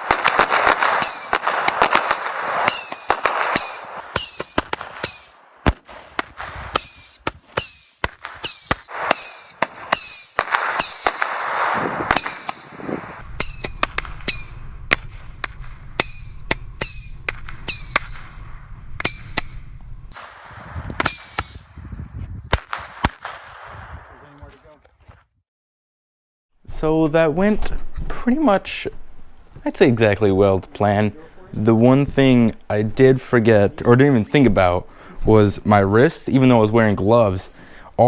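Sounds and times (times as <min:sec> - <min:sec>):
roman candles popping: 0:00.0 - 0:18.2
falling whistle: 0:00.9 - 0:05.7, 0:06.7 - 0:14.7, 0:16.0 - 0:18.3, 0:19.0 - 0:20.4, 0:21.0 - 0:22.1.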